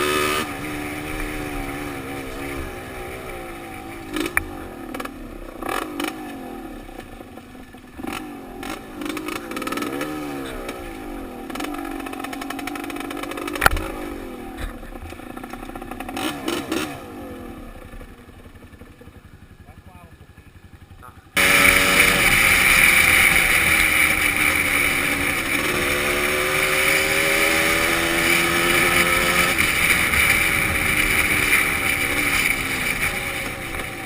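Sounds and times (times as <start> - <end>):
motorcycle engine revving: 0.0 - 34.0
bike knocking and rattling: 14.5 - 16.9, 17.8 - 34.0.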